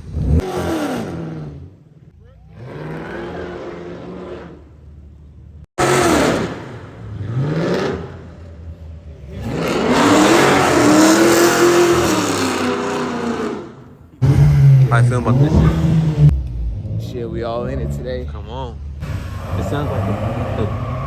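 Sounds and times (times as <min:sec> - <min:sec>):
car engine revving: 0:00.0 - 0:04.9, 0:05.8 - 0:21.0.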